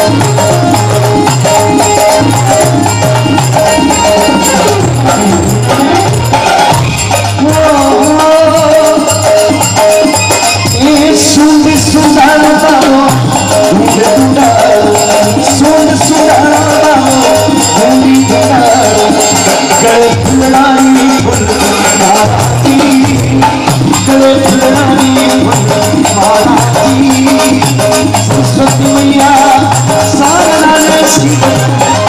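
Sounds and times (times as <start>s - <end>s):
hand drum beat: 0.0s - 32.0s
instrumental melody line: 0.0s - 32.0s
shaken rattling percussion: 0.0s - 32.0s.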